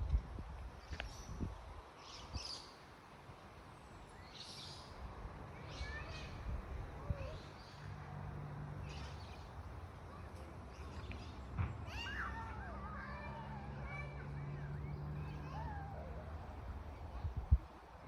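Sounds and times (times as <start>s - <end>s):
outdoor background noise: 0.0s - 18.0s
birds chirping: 3.6s - 18.0s.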